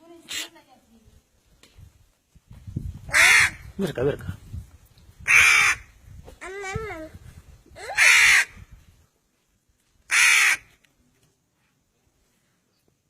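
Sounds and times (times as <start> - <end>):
crow cawing: 3.1 - 3.6, 5.3 - 5.9, 7.9 - 8.6, 10.1 - 10.7.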